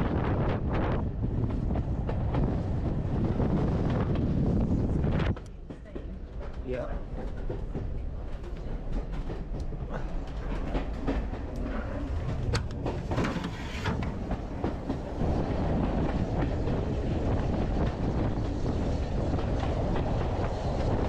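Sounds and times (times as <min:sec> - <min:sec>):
train rumble: 0:00.0 - 0:21.0
wheels clicking over rail joints: 0:05.2 - 0:17.1.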